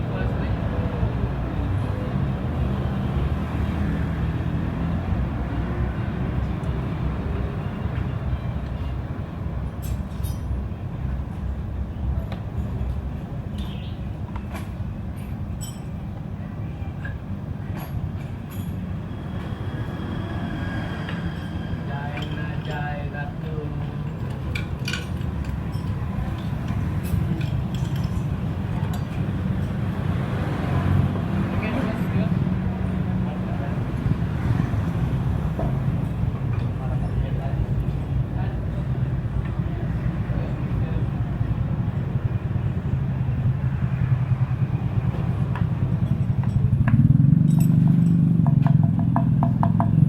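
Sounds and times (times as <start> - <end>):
faint metallic clinks: 15.2 - 16.0, 47.4 - 48.4.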